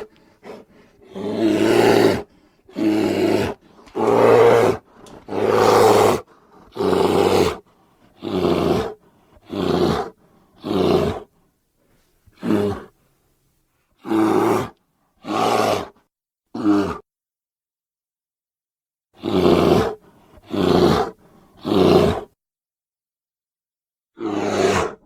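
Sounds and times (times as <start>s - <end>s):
bear roaring: 0.0s - 7.6s, 8.2s - 11.3s, 14.0s - 17.0s, 19.2s - 22.3s, 24.2s - 25.0s.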